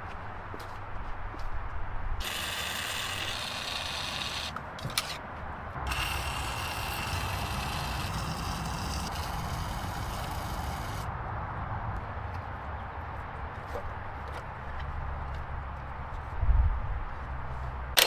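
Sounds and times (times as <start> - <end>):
ratchet wrench clicking: 2.2 - 5.1, 5.9 - 11.1.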